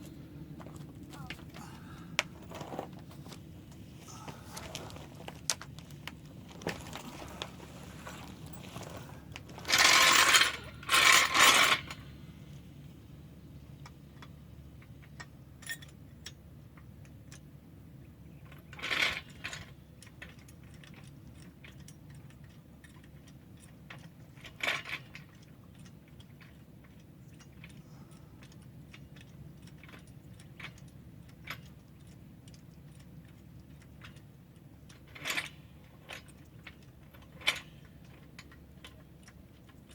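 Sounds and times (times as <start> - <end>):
low steady hum: 0.0 - 39.9
short rasps: 4.0 - 5.3.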